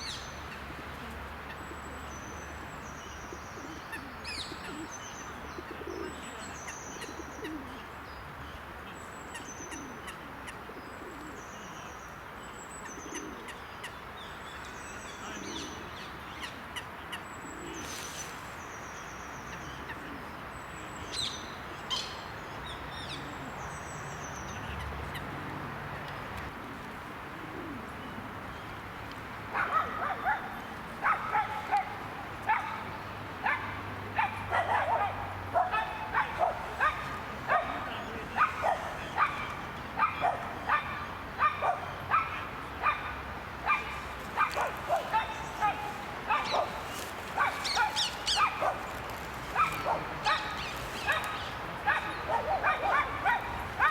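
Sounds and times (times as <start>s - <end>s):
small birds chirping: 43.9s - 53.4s.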